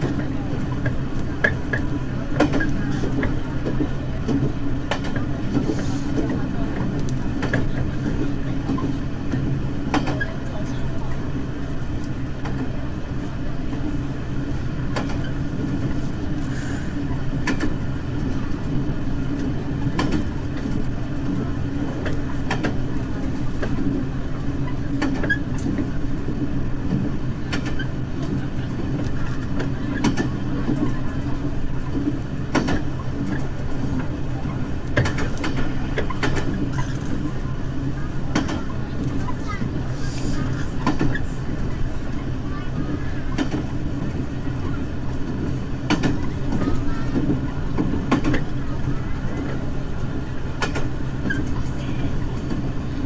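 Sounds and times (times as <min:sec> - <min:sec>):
railcar engine drone: 0:00.0 - 0:53.0
wheels clicking over rail joints: 0:00.0 - 0:53.0.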